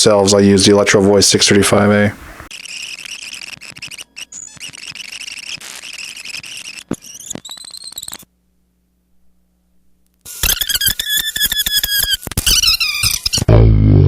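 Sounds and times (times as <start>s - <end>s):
faint electrical hum: 0.0s - 10.4s.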